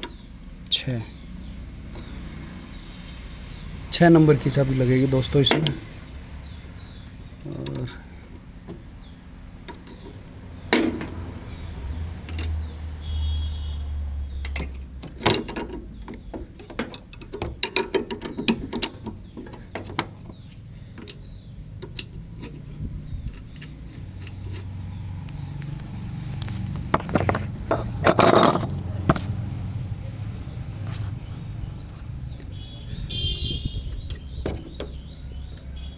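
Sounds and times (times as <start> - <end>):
spanner clinking on metal: 4.1 - 29.3.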